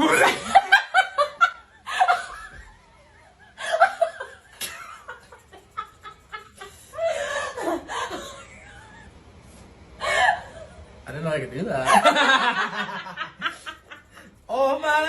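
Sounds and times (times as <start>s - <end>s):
people laughing: 0.0s - 9.1s, 11.8s - 14.3s.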